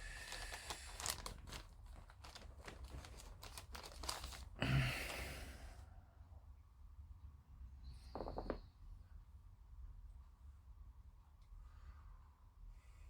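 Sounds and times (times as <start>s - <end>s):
plastic bag crinkling: 0.2s - 4.6s.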